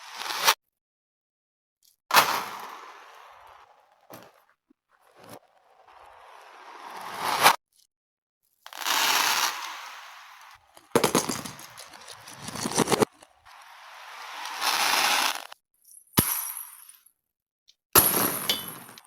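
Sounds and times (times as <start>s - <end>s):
reversed beads rattling: 10.7s - 13.4s.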